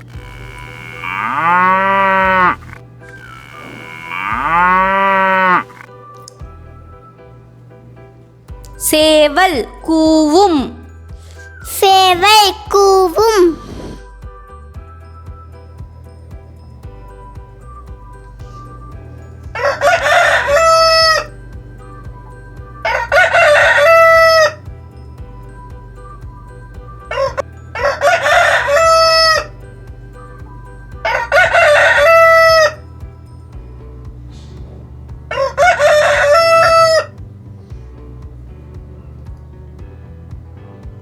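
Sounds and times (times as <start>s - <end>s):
rooster crowing: 0.0s - 5.9s, 19.6s - 21.3s, 27.9s - 29.5s, 31.1s - 32.7s.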